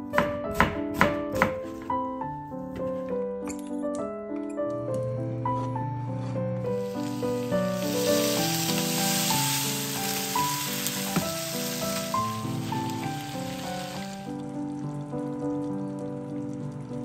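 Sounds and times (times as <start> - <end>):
light background music: 0.0 - 17.0
food sizzling in hot oil: 6.8 - 15.0.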